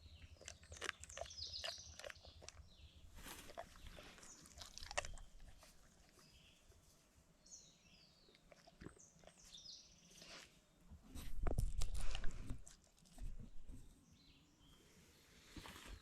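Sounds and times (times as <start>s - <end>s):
faint birdsong: 0.0s - 16.0s
small clicks and rustles: 11.1s - 13.8s.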